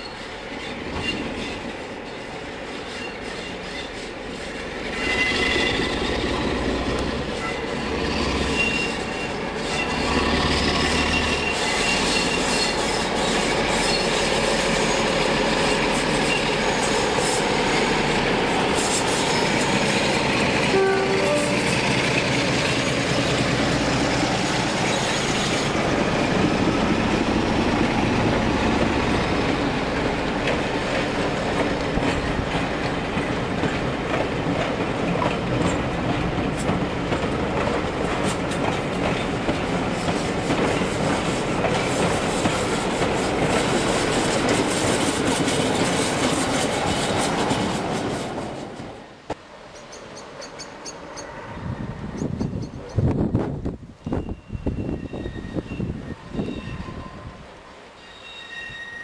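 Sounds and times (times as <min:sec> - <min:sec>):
wheels clacking over rail joints: 0:00.5 - 0:51.2
wheels squealing on curve: 0:04.9 - 0:06.5, 0:07.3 - 0:17.6, 0:54.0 - 0:57.4, 0:58.0 - 0:59.0.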